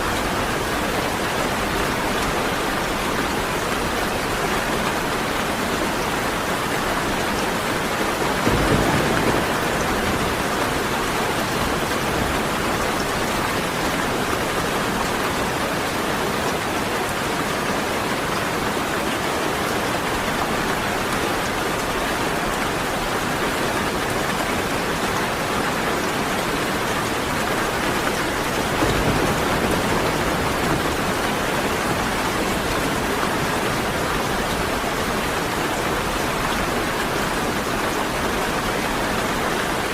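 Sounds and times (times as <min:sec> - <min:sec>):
heavy rain falling: 0:00.0 - 0:39.9
low rumbles of thunder: 0:08.3 - 0:12.4, 0:28.6 - 0:32.8.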